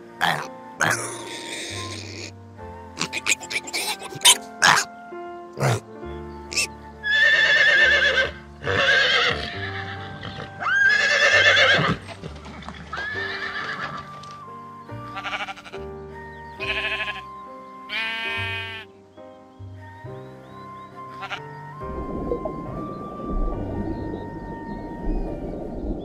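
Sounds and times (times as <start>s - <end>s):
background music with held notes: 0.0s - 26.0s
pony whinnying: 0.2s - 2.3s, 3.0s - 4.9s, 6.5s - 12.0s, 12.8s - 14.2s, 15.1s - 15.8s, 16.7s - 17.3s
sheep bleating: 15.1s - 15.8s, 16.6s - 17.3s, 17.9s - 18.9s, 21.2s - 21.4s.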